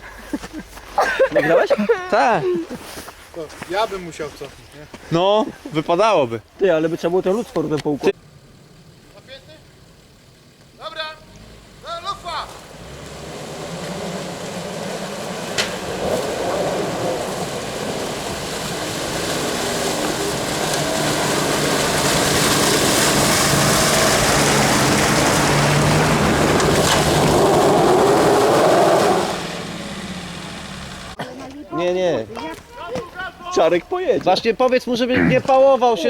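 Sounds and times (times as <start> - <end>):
off-road vehicle engine under load: 6.1 - 32.6
water rushing splash: 12.3 - 31.2.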